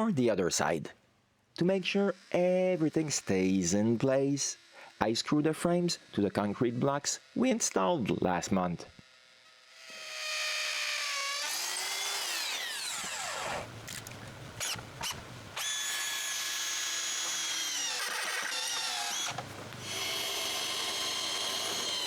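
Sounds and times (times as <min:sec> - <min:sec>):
power drill driving screws: 0:09.4 - 0:22.0.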